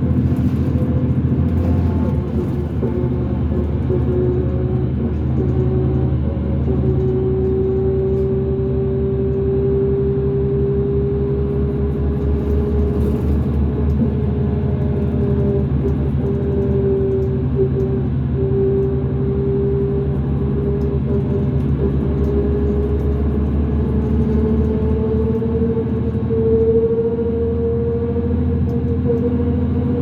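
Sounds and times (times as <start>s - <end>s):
diesel bus engine drone: 0.0s - 30.0s.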